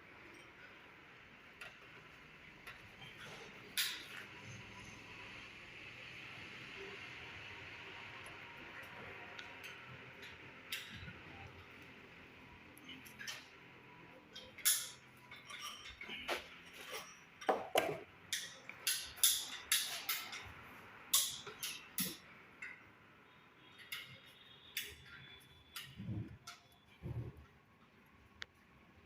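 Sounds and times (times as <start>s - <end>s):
sharp knocks and clicks of hard objects: 17.4s - 20.4s.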